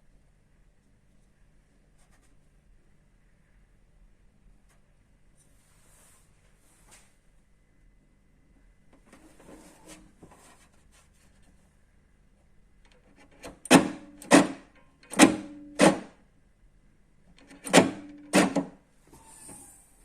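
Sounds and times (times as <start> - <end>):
boot lock mechanism clunking: 12.9 - 16.2, 17.3 - 18.8.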